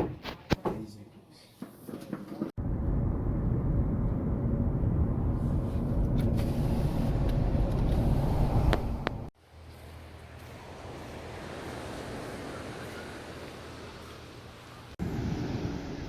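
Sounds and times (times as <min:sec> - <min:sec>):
low rumbling noise: 0:02.6 - 0:09.3.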